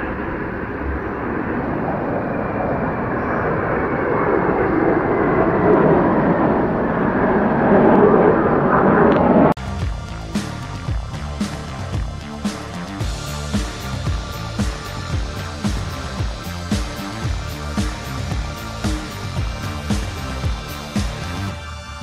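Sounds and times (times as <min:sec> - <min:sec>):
faint falling whine: 0:00.0 - 0:09.6
jet engine roar: 0:00.0 - 0:22.0.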